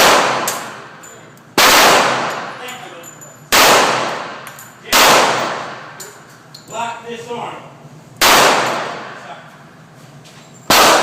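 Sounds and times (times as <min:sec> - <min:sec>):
pistol shots echoing: 0:00.0 - 0:01.0, 0:01.6 - 0:02.6, 0:03.5 - 0:06.0, 0:08.2 - 0:09.3, 0:10.7 - 0:11.0.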